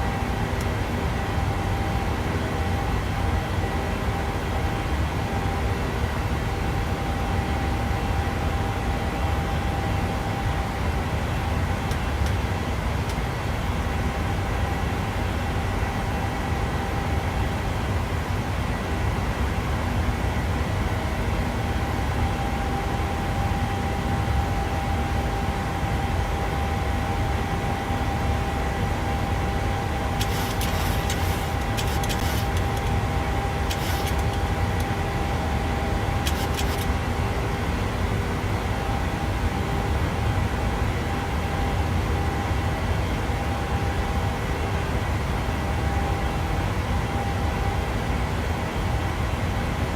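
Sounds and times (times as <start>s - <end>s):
airplane cabin rumble: 27.1s - 37.3s
short bursts of high hiss: 30.2s - 32.7s, 33.6s - 34.3s.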